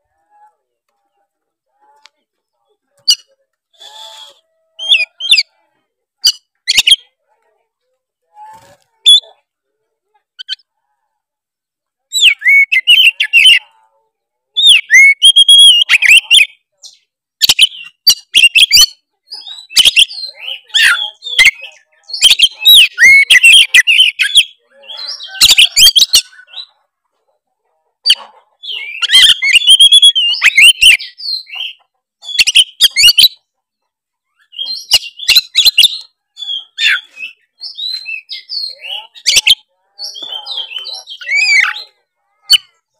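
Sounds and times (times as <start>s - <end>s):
bird singing whistled phrases: 28.8s - 31.5s.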